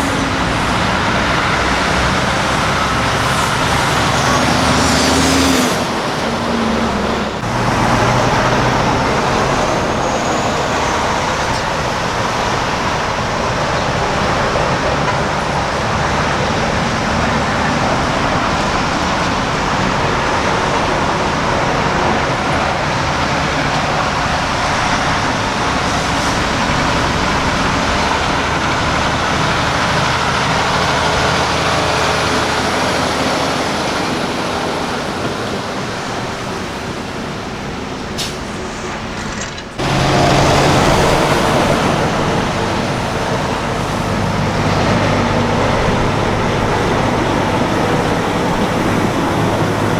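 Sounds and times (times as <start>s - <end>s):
diesel truck engine drone: 0.0s - 49.9s
road noise: 0.0s - 49.9s.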